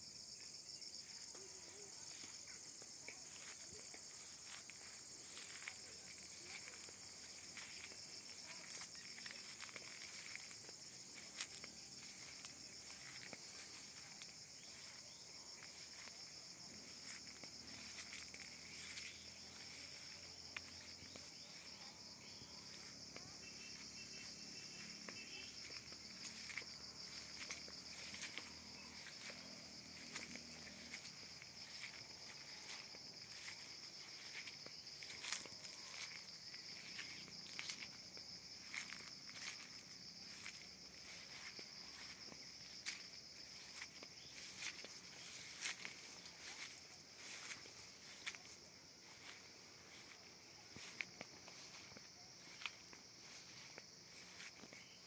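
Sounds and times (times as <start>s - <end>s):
insects chorus: 0.0s - 55.0s.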